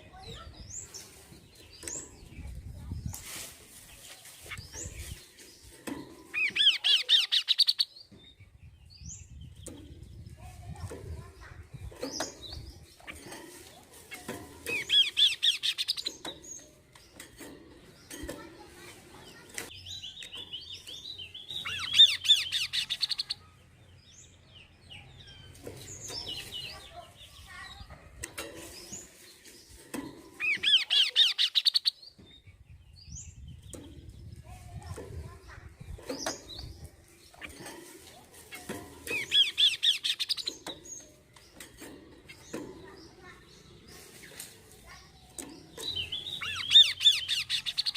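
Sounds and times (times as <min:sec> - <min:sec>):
songbird chirping and chattering: 0:00.0 - 0:47.9
bird calling: 0:30.3 - 0:32.0.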